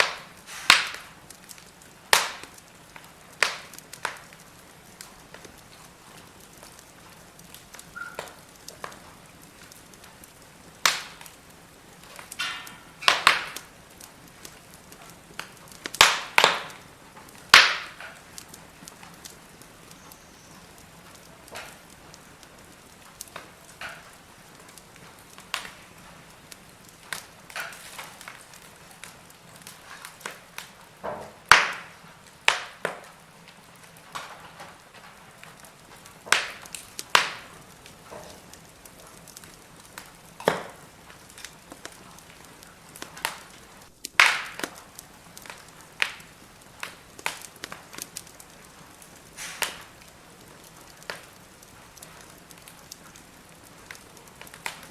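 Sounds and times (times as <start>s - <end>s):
faint steady hiss: 0.0s - 54.9s
firewood crackling and popping: 0.0s - 54.9s.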